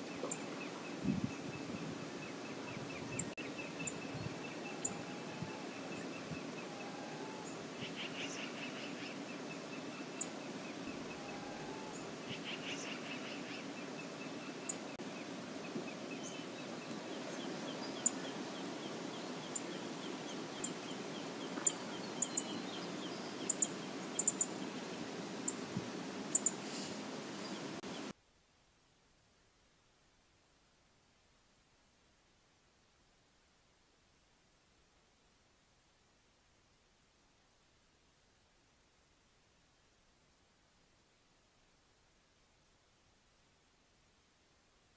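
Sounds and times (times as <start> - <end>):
birds chirping: 0.0 - 28.1.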